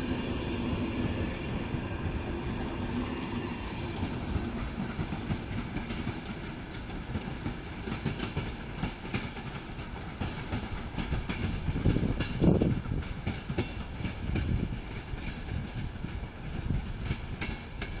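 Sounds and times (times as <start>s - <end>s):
train wheels clacking on rails: 0.0s - 18.0s.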